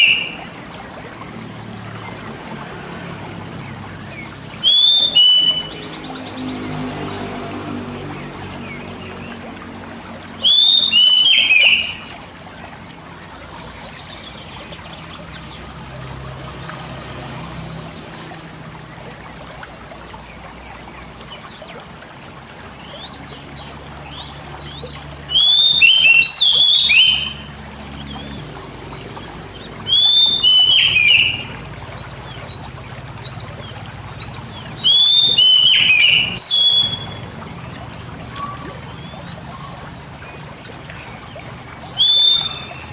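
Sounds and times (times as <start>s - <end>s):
bird whistling song: 0.0s - 0.5s, 4.0s - 6.5s, 10.3s - 12.2s, 24.1s - 28.6s, 29.4s - 42.9s
trickling water: 0.0s - 42.9s.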